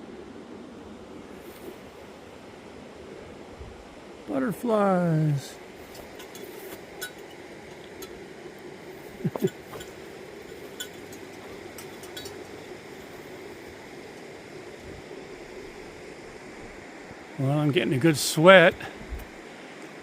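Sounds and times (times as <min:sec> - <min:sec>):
flowing water: 0:00.0 - 0:20.0
footsteps on forest trail: 0:05.8 - 0:08.0.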